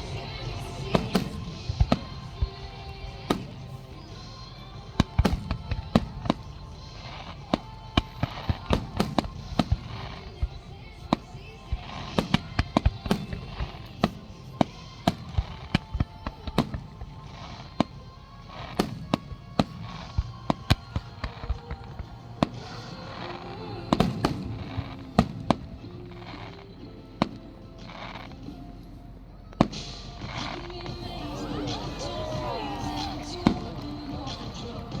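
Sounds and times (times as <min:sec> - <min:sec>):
fireworks banging: 0:00.0 - 0:26.6.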